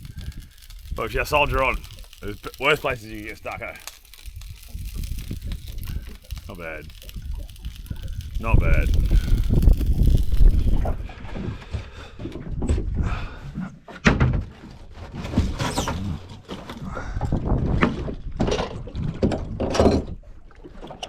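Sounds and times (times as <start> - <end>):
wind buffeting microphone: 0.0 - 13.5, 16.9 - 20.2.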